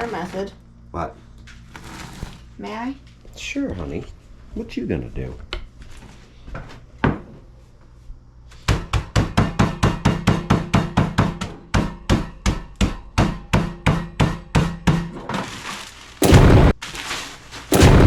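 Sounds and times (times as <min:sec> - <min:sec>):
pounding on bag of fried onions: 0:13.2 - 0:18.0
rough crash: 0:16.2 - 0:18.0.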